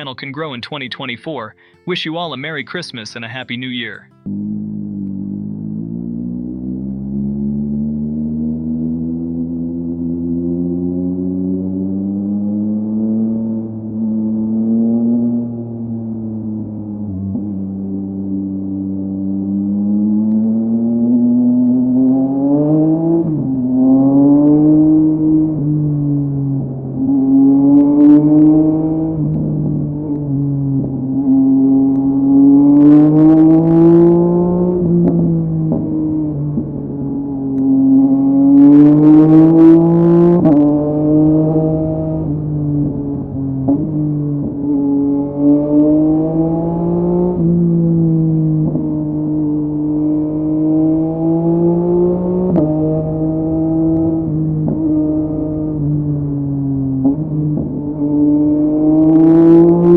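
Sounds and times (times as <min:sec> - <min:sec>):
motorcycle engine running: 0:04.1 - 0:12.9, 0:24.6 - 0:45.3
exhaust crack at gear change: 0:04.2 - 0:10.1, 0:12.3 - 0:58.1.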